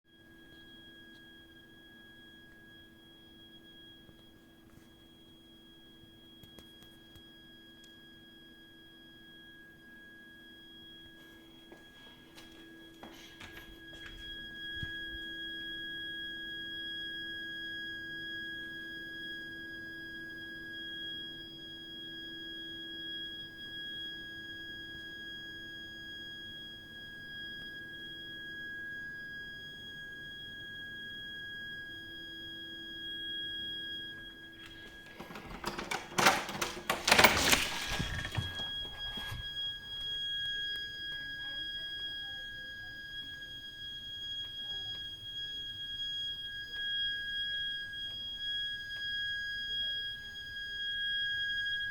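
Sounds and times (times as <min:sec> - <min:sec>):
shrill whistle-like pipe shriek: 0:12.9 - 0:35.4, 0:37.1 - 0:51.9.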